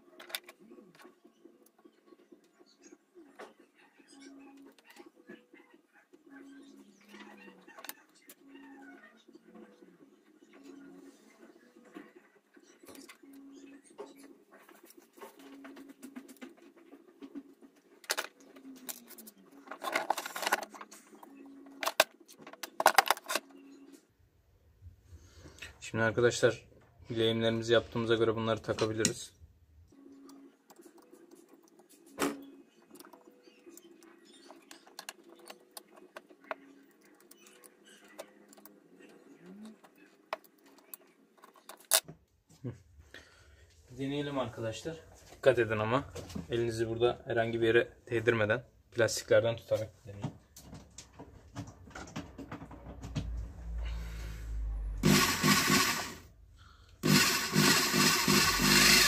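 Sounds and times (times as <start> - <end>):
hands clicking and tapping parts: 18.0 - 23.5, 30.3 - 38.8, 39.6 - 42.2
rotary hammer drill running: 55.0 - 56.3, 57.0 - 59.0.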